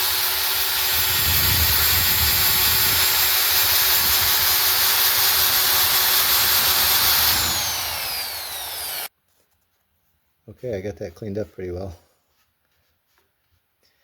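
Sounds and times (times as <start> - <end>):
motor spinning down: 0.0 - 9.1
sanding on a lathe: 0.0 - 9.1
wood lathe running: 0.0 - 9.1.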